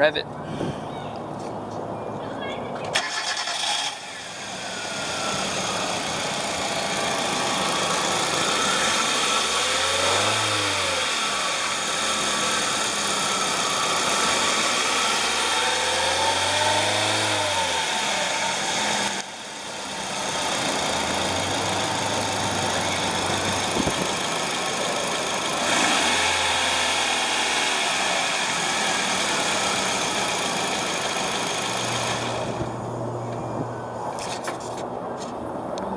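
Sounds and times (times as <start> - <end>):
car engine idling and revving: 3.0 - 35.9.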